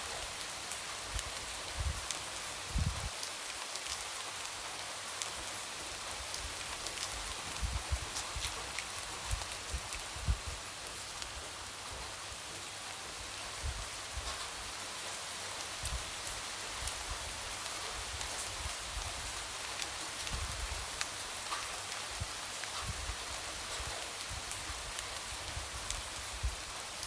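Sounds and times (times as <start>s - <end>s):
light rain hissing: 0.0s - 27.0s.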